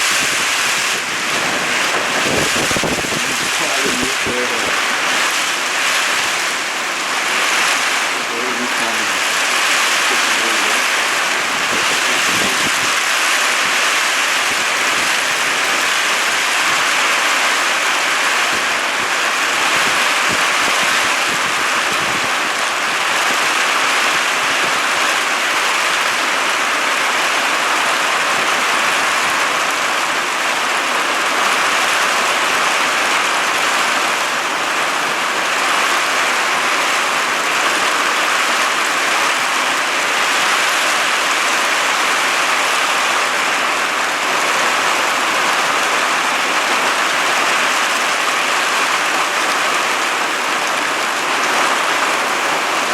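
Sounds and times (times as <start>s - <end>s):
heavy rain: 0.0s - 52.9s.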